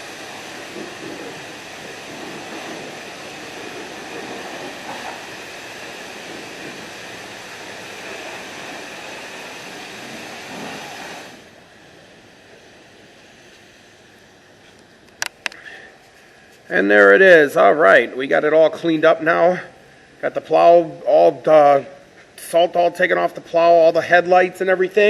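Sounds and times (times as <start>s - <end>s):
pressure washer spraying water: 0.0s - 14.7s.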